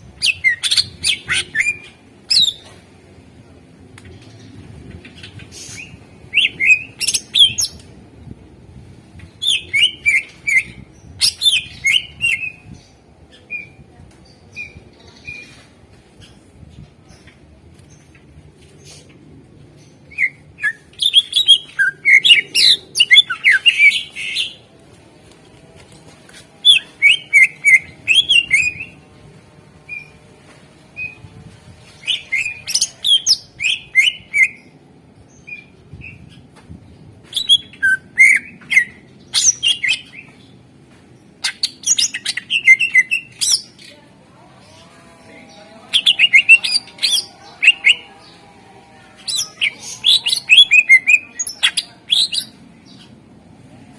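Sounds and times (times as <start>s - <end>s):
bird singing chirps and whistles: 9.4s - 12.6s, 37.3s - 40.3s, 41.4s - 43.6s.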